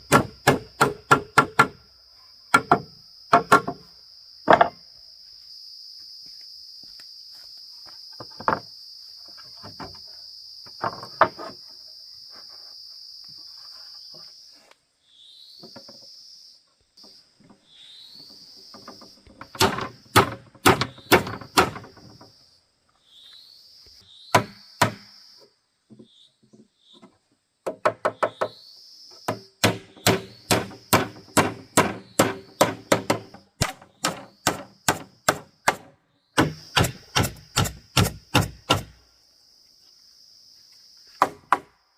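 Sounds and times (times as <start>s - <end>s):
tool strikes on wood: 0.0s - 1.8s, 2.5s - 3.8s, 4.5s - 4.8s, 18.8s - 22.2s, 24.3s - 25.1s, 27.6s - 28.6s, 29.2s - 39.0s, 41.2s - 41.7s
high insect drone: 0.0s - 41.9s.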